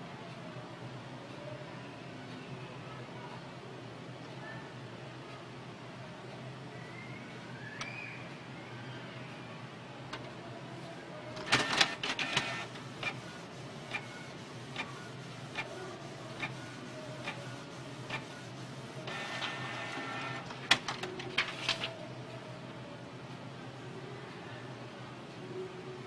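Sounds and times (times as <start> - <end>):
printer whirring and clattering: 11.3 - 22.1
printer ticking: 11.4 - 22.0.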